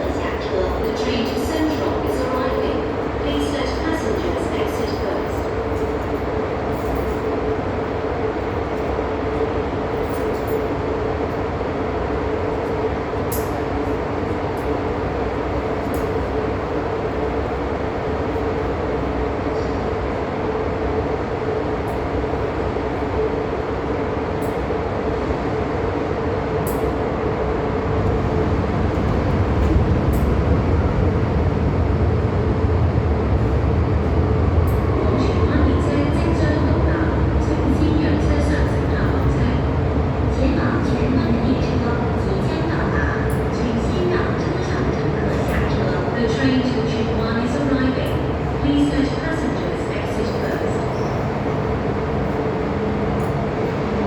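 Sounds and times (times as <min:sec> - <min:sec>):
train car hum: 0:00.0 - 0:54.0
low rumble: 0:27.7 - 0:35.7.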